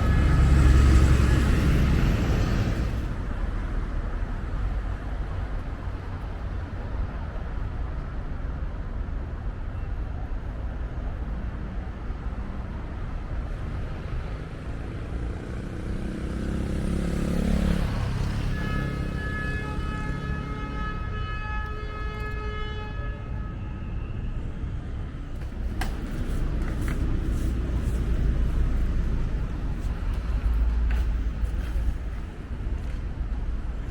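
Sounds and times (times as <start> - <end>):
vehicle passing close: 0.0 - 3.2, 14.3 - 19.2
city street traffic rumble: 0.0 - 33.9.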